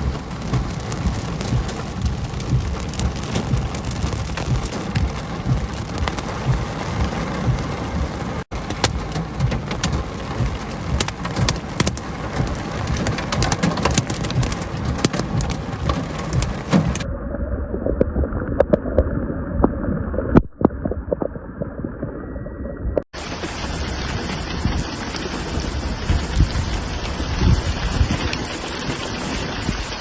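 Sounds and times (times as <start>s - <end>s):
heavy rain falling: 0.0s - 17.1s, 23.2s - 30.0s.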